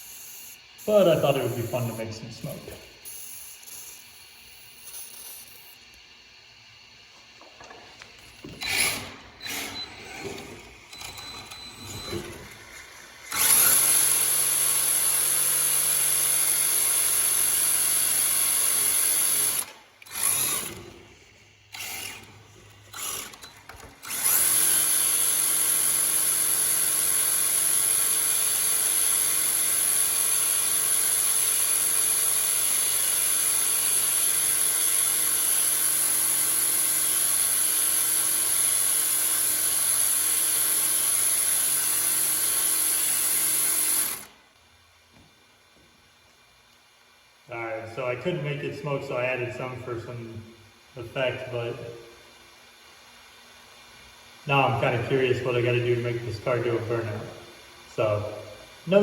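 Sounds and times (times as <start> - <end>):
rc car motor whining: 0.0 - 6.0, 8.4 - 21.1, 21.7 - 44.4.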